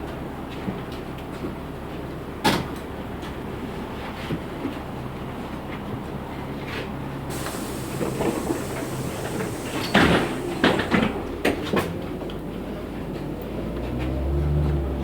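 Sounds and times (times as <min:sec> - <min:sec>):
air hissing: 0:07.3 - 0:11.4
bus doors clunking: 0:07.3 - 0:12.0
bus engine humming: 0:07.3 - 0:15.0.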